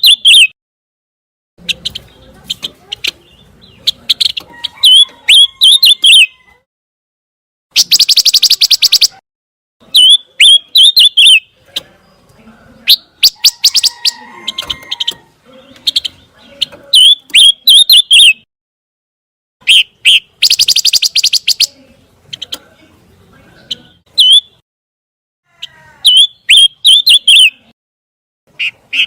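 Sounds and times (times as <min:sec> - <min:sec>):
bird trilling and chirping: 0:00.0 - 0:00.5, 0:01.6 - 0:06.6, 0:07.7 - 0:09.2, 0:09.8 - 0:18.5, 0:19.6 - 0:24.6, 0:25.6 - 0:27.7, 0:28.5 - 0:29.0.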